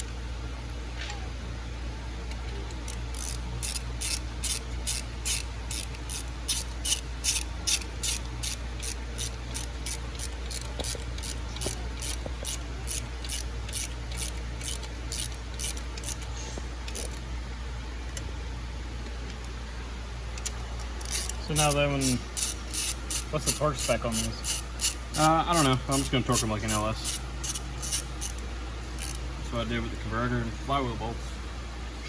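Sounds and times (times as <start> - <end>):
ratchet wrench rasping: 2.7 - 17.2, 20.4 - 29.2.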